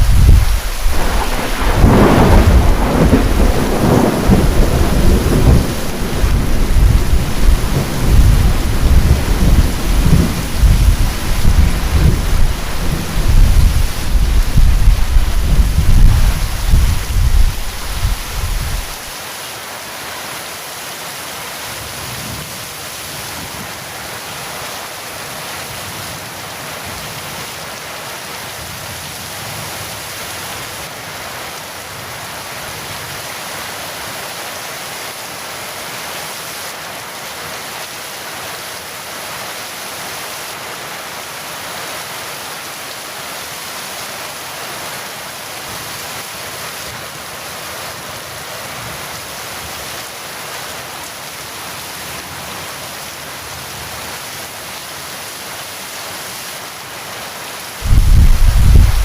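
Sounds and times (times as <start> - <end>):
low thunder rumble: 0.0 - 19.1, 57.8 - 59.0
heavy rain falling: 0.0 - 59.0.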